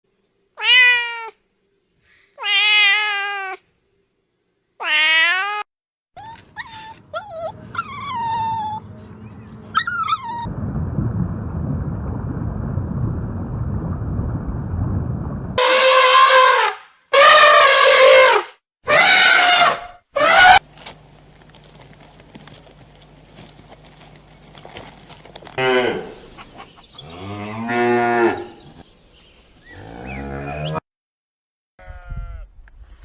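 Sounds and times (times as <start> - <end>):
cat meowing: 0.6 - 1.4, 2.4 - 3.6, 4.8 - 8.8.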